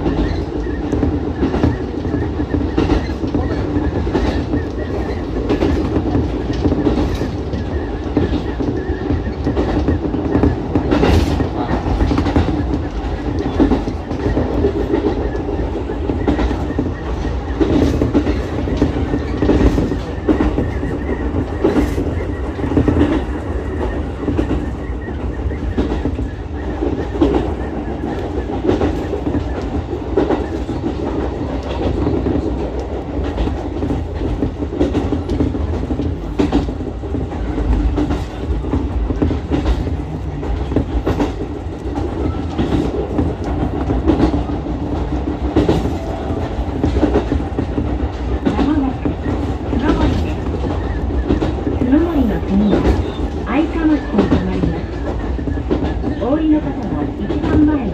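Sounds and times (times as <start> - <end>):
train running rumble: 0.0 - 57.9
wheels clicking over rail joints: 0.0 - 57.9.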